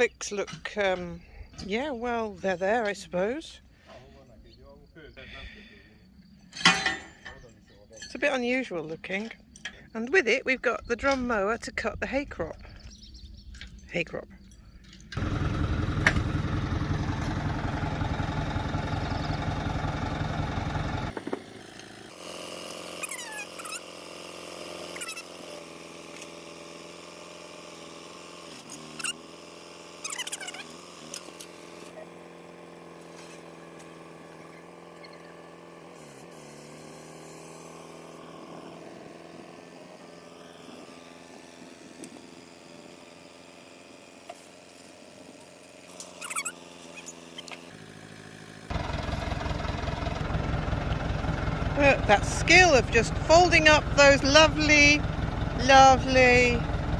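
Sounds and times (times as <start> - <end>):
quiet engine hum: 0.0 - 22.0, 44.2 - 56.9
loud engine running: 15.1 - 56.9
high falling squeaks: 23.0 - 23.9, 30.0 - 30.7, 46.0 - 47.6.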